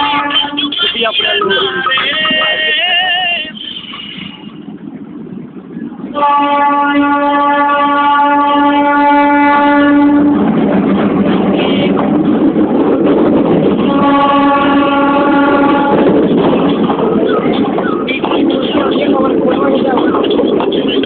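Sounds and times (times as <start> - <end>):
locomotive horn blast: 0.0 - 2.8, 6.1 - 10.5, 11.4 - 12.1, 13.8 - 16.2
train rumbling past: 0.0 - 21.0.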